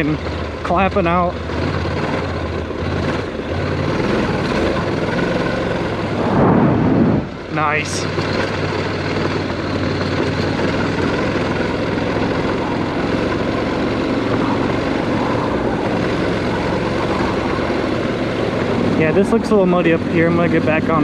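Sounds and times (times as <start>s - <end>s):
motorcycle engine running: 2.0s - 21.0s
wind noise on microphone: 6.0s - 7.6s.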